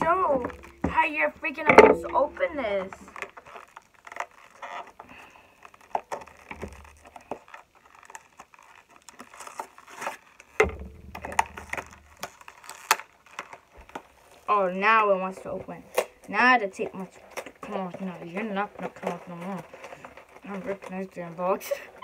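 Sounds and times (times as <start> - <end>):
dull bumps: 0.0 - 3.2, 10.6 - 12.4
toy box being handled: 0.0 - 22.0.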